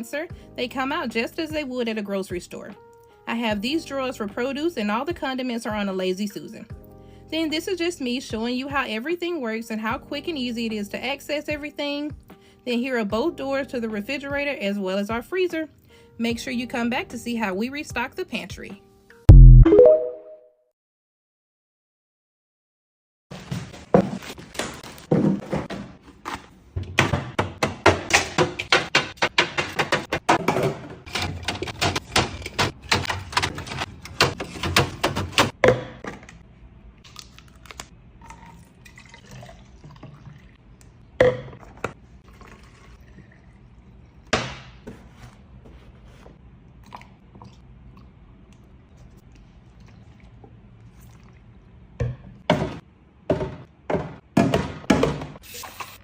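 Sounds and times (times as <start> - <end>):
containers knocking and clattering: 26.8 - 36.4, 52.0 - 55.4.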